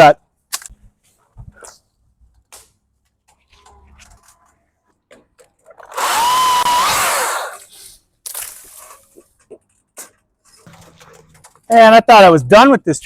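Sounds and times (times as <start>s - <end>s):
electric chainsaw motor whine: 5.9s - 7.6s.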